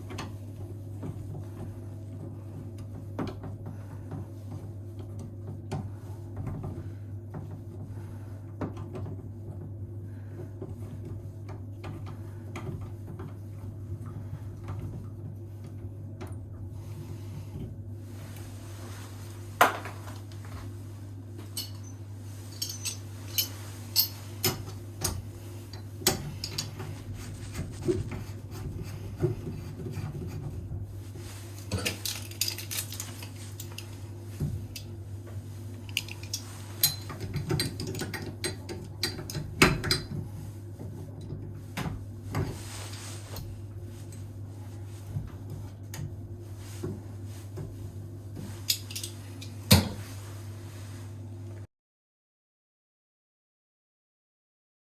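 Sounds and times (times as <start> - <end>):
steady low hum: 0.0 - 51.7
metal tools clinking: 21.4 - 24.8, 31.7 - 33.9, 35.9 - 38.0, 48.7 - 49.2.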